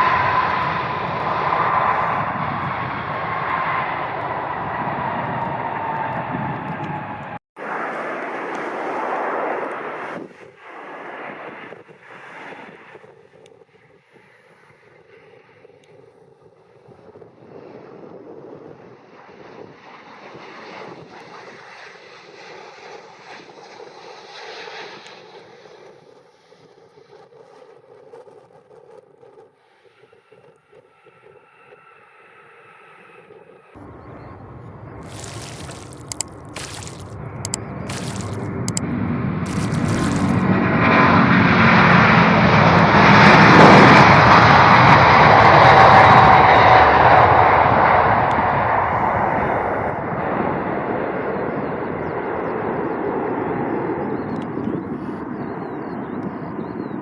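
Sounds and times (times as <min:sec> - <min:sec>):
jet engines rushing: 0:00.0 - 0:13.0
jet airliner passing: 0:00.0 - 0:15.7, 0:16.8 - 0:27.2, 0:31.0 - 0:57.0.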